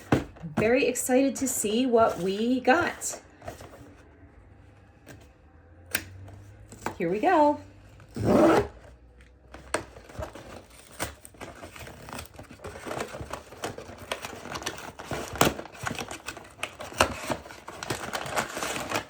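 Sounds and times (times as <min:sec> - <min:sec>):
cardboard box being opened: 0:08.0 - 0:19.0
packaging crinkling: 0:09.0 - 0:19.0.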